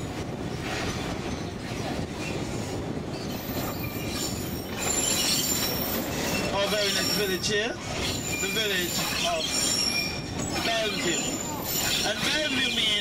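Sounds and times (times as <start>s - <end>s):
train wheels rumbling on rails: 0.0s - 13.0s
faint wheel squeals: 3.1s - 12.6s.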